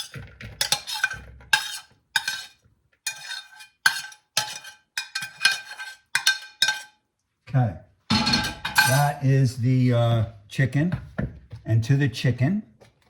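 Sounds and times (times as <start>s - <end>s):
spoon scraping and knocking bowl: 0.0s - 7.0s, 8.1s - 9.2s.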